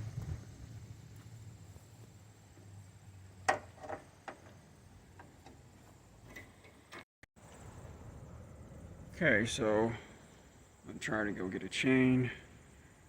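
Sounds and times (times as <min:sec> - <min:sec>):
low steady hum: 0:07.4 - 0:13.0.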